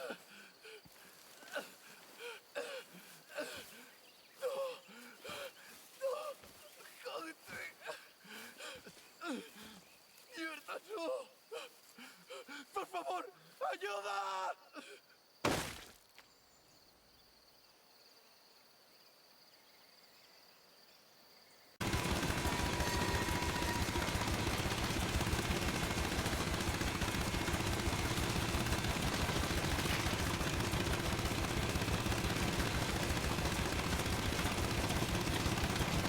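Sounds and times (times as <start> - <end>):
rapid mechanical rattle: 21.8 - 36.0.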